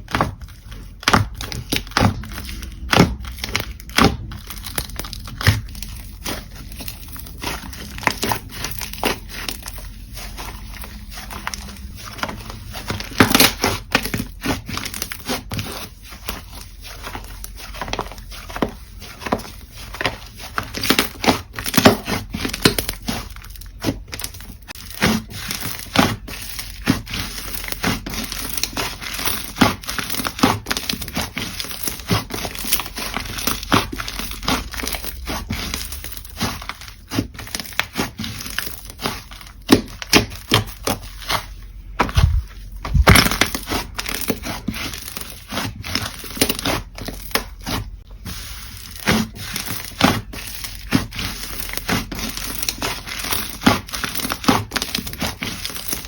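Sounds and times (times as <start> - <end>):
slime crackling and popping: 0.0 - 41.5.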